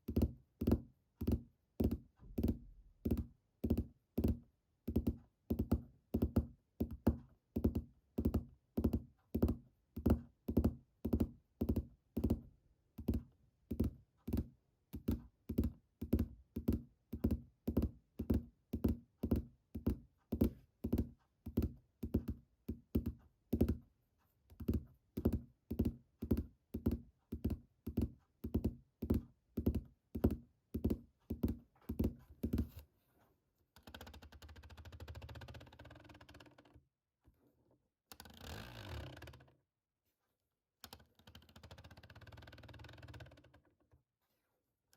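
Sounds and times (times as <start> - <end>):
fingers tapping on object: 0.0 - 23.9, 24.5 - 32.8.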